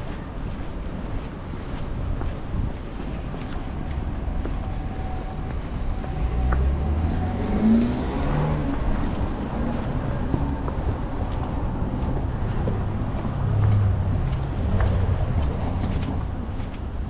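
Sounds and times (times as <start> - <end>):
wind buffeting microphone: 0.0 - 17.0
vehicle engine passing by: 5.9 - 16.1.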